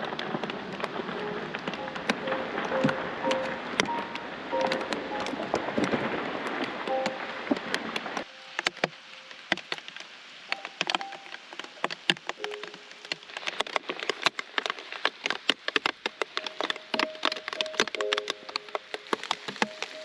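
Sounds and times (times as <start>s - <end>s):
raindrops ticking: 0.0s - 20.0s
held keyboard notes: 1.2s - 5.8s, 6.9s - 7.5s, 16.4s - 20.0s.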